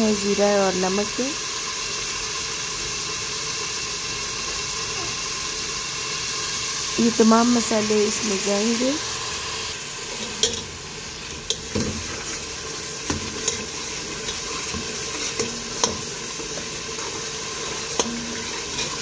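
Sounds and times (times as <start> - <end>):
masala sizzling in oil: 0.0 - 19.0
metal spoon clinking against pot: 10.2 - 10.7, 17.9 - 19.0.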